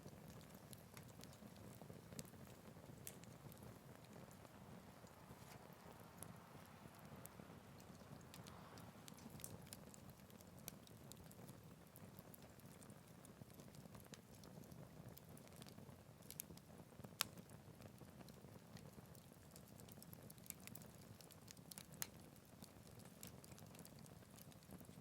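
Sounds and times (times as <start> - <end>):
wood fire crackling and popping: 0.0 - 25.0
hiss of flame: 8.3 - 9.9.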